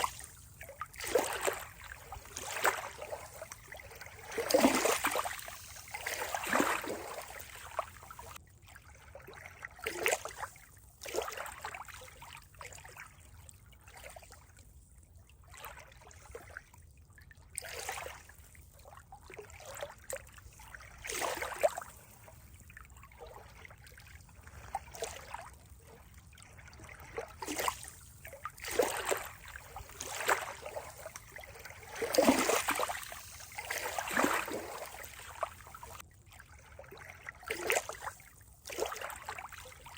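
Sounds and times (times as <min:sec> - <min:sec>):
water lapping and trickling: 0:00.0 - 0:39.9.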